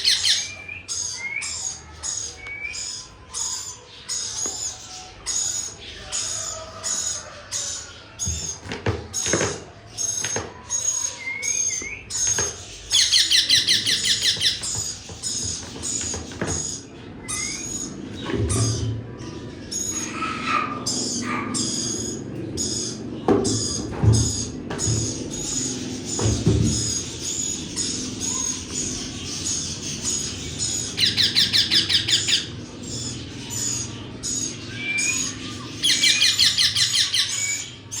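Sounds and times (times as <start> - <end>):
parrot chattering: 0.0 - 0.6, 12.9 - 14.7, 27.2 - 32.6
parrot calling: 0.0 - 8.1, 12.9 - 14.9, 17.2 - 26.2, 26.8 - 38.0.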